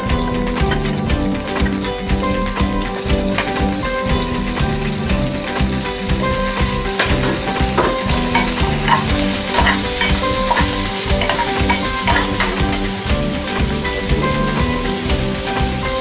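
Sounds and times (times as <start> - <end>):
vegetables sizzling in hot oil: 0.0 - 16.0
spatula scraping and knocking pan: 6.2 - 13.0.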